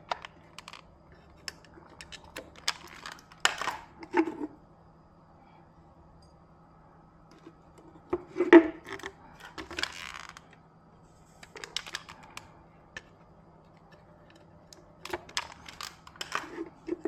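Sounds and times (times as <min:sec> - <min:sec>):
small hard objects clicking: 0:00.0 - 0:03.9, 0:11.4 - 0:12.5, 0:14.7 - 0:16.5
faint steady hum: 0:00.0 - 0:17.0.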